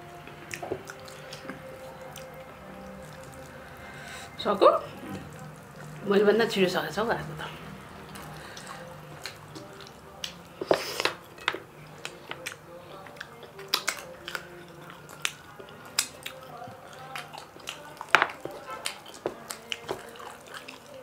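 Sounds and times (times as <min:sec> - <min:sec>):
wet chewing and lip smacks: 0:00.5 - 0:03.6, 0:12.0 - 0:21.0.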